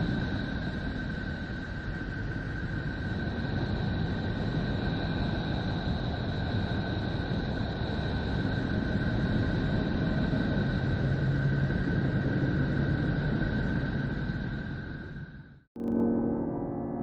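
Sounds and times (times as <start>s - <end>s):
low rumbling drone: 15.8s - 17.0s.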